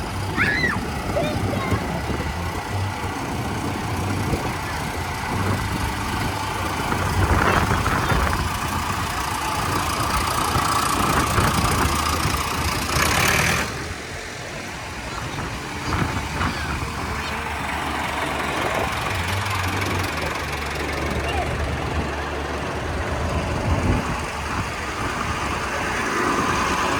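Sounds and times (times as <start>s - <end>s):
tractor engines rumbling: 0.0s - 26.9s.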